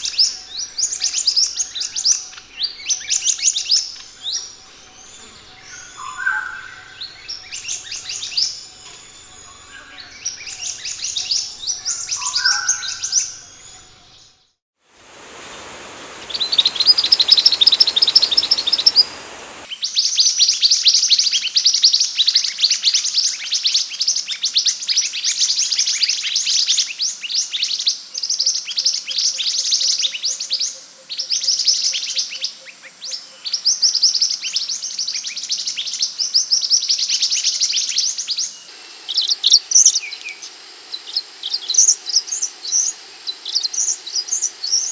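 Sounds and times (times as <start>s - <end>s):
background hiss: 0.0s - 44.9s
bird singing high thin chirps: 15.0s - 19.7s.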